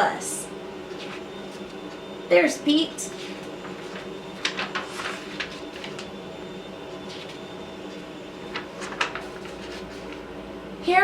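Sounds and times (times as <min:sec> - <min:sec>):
low room hum: 0:00.0 - 0:11.0
paper pages rustling: 0:00.9 - 0:02.0, 0:03.1 - 0:06.2, 0:07.0 - 0:10.3.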